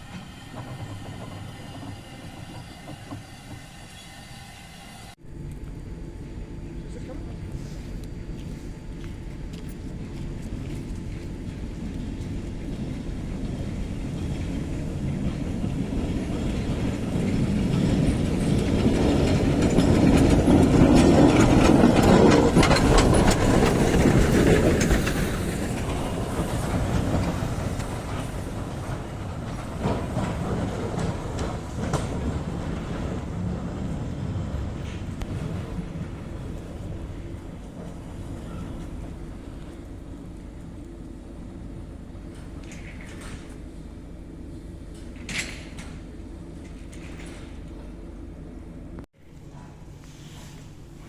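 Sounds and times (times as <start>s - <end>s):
train wheels clacking on rails: 0.0s - 5.2s, 9.7s - 40.8s.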